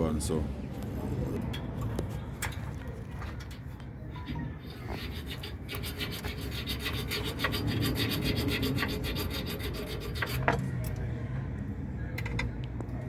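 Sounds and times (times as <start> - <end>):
hacksaw cutting metal: 4.3 - 10.6.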